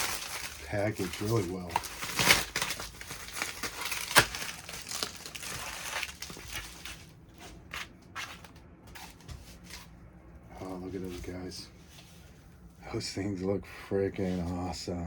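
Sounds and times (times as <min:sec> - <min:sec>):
packaging crinkling and tearing: 0:00.0 - 0:09.2.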